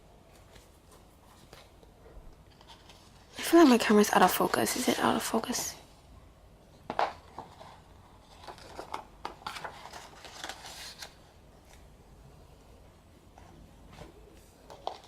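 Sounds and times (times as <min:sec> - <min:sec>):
pages rustling: 0:00.2 - 0:05.6, 0:06.9 - 0:11.9.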